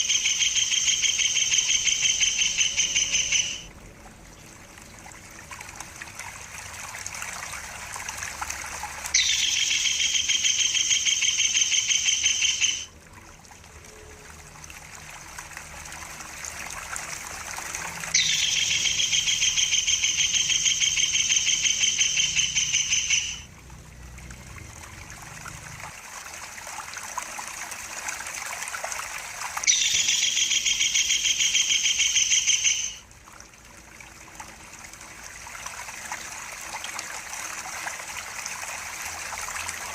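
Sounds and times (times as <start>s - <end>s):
kingfisher chattering calls: 0.0s - 3.7s, 9.2s - 12.9s, 18.2s - 23.5s, 29.7s - 33.0s
water trickling and gurgling: 0.0s - 39.9s.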